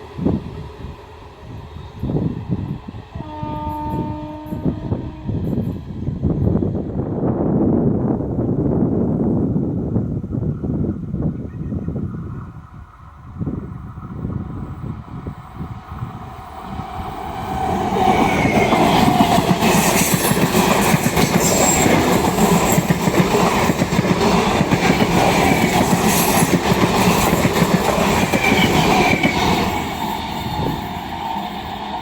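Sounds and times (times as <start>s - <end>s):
train wheels rumbling and clattering: 13.1s - 32.0s.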